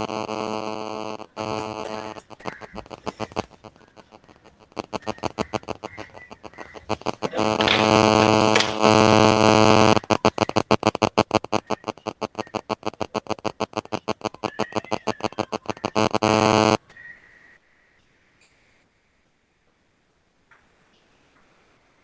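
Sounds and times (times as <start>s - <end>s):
distorted electronic buzz: 0.0s - 16.8s.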